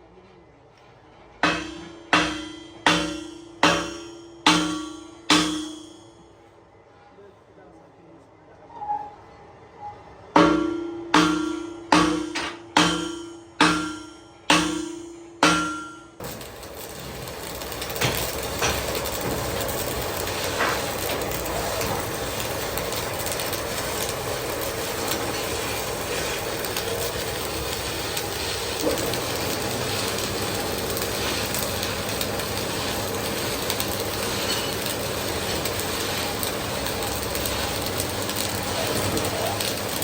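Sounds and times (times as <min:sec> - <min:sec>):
sharp metallic knocks: 0:01.4 - 0:06.3, 0:10.4 - 0:16.2.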